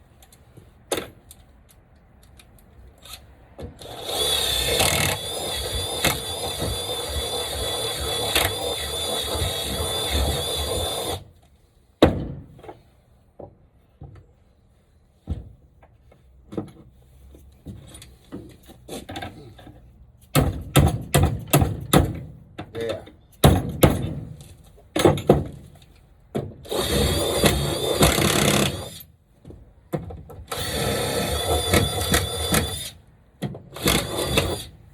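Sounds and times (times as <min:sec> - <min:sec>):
power drill running: 0:03.8 - 0:11.2, 0:26.7 - 0:29.0, 0:30.5 - 0:32.9, 0:33.8 - 0:34.7.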